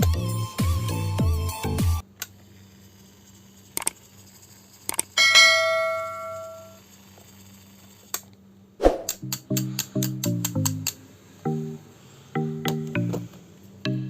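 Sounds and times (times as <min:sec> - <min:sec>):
music: 0:00.0 - 0:02.0, 0:09.2 - 0:14.0
low steady hum: 0:05.2 - 0:06.8
metallic bell-like ring: 0:05.2 - 0:06.8.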